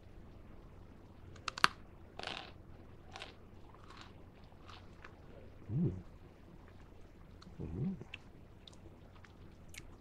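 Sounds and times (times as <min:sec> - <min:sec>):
crunching chews: 0:01.4 - 0:05.2.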